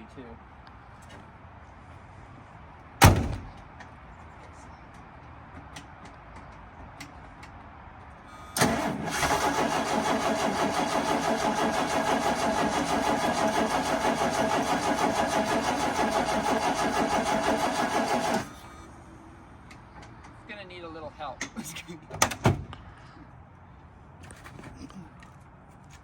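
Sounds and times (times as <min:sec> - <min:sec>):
starter cranking engine: 0:08.6 - 0:18.6.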